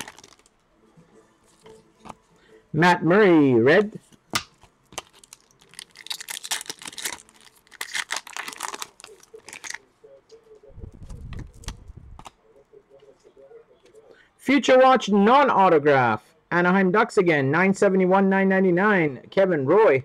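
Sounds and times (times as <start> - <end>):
foil card wrapper crinkling: 0.0 - 0.5, 4.9 - 9.8.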